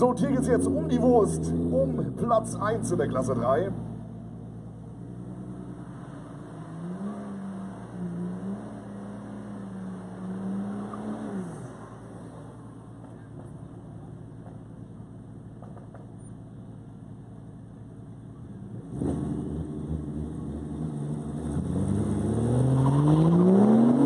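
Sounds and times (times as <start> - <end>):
turbo car engine revving: 0.0 - 11.9, 18.6 - 24.0.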